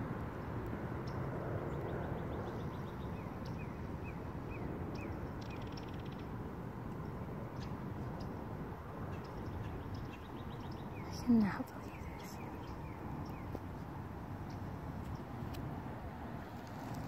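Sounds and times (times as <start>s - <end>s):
low outdoor background noise: 0.0s - 17.0s
songbird singing: 1.0s - 15.6s.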